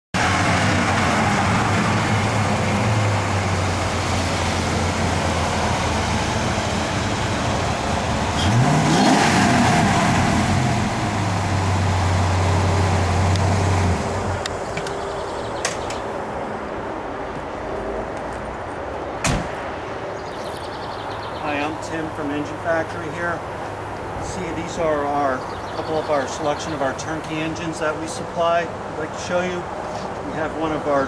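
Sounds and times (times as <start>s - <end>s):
car engine idling and revving: 0.2s - 21.3s.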